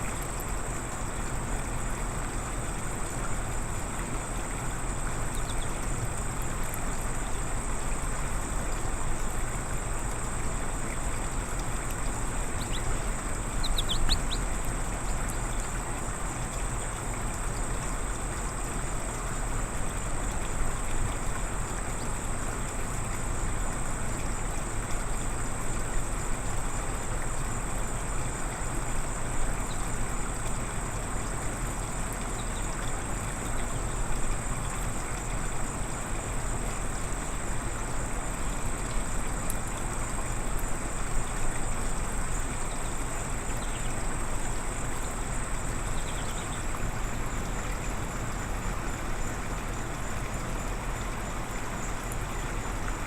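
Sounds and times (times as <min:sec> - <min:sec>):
constant thin high tone: 0:12.0 - 0:15.7
quick bird chirps: 0:12.6 - 0:13.0, 0:13.6 - 0:14.5.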